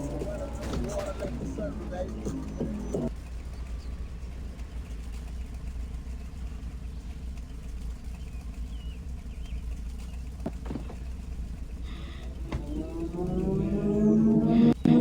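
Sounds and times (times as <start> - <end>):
faint bird chirps: 0.0 - 4.1, 4.8 - 11.1
car engine idling: 0.0 - 15.0.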